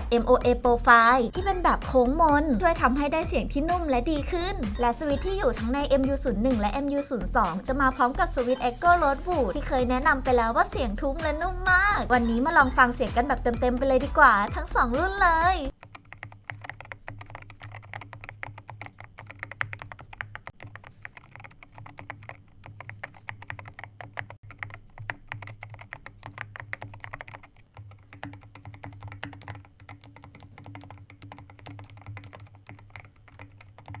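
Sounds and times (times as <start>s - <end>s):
mechanical keyboard typing: 0.1s - 34.0s.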